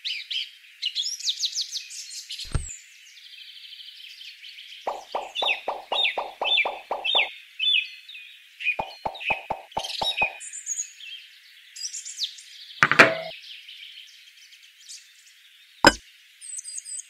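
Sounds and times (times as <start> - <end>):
object dropping into basket: 2.5 - 2.7, 12.8 - 13.3
bird rapidly repeating call: 4.9 - 7.3, 8.8 - 10.4
birds chirping: 4.9 - 7.3, 8.8 - 10.4.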